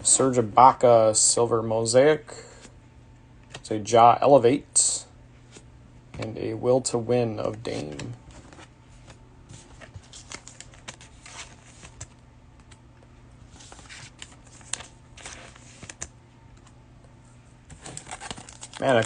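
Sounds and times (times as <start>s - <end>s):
low steady hum: 0.0s - 19.0s
trading cards clicking and rustling: 7.4s - 8.7s, 17.7s - 19.0s.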